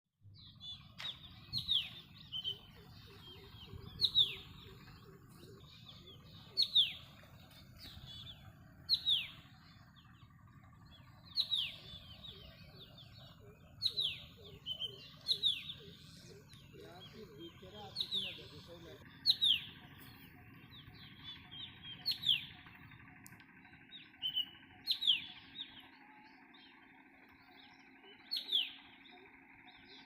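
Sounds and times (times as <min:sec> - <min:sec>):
low steady rumble: 0:00.2 - 0:30.0
bird chirping: 0:00.3 - 0:30.0.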